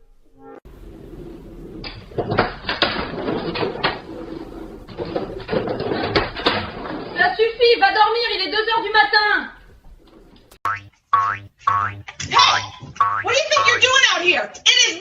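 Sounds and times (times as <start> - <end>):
knocks and clatters: 0.8 - 7.6.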